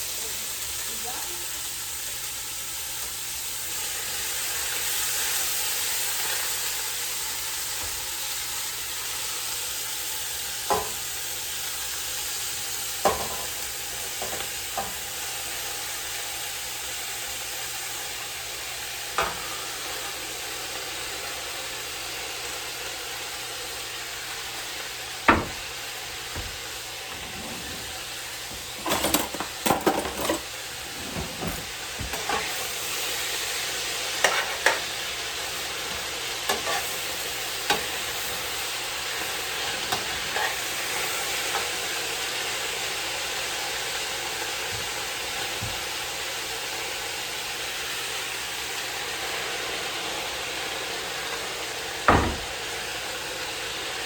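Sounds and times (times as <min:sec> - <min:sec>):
cabbage sizzling in oil: 0:00.0 - 0:54.0
utensil scraping pan: 0:26.3 - 0:32.8, 0:34.2 - 0:34.9, 0:35.9 - 0:38.4.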